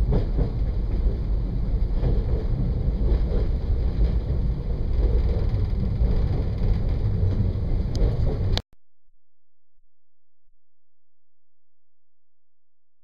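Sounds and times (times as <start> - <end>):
train rumbling along track: 0.0 - 8.6.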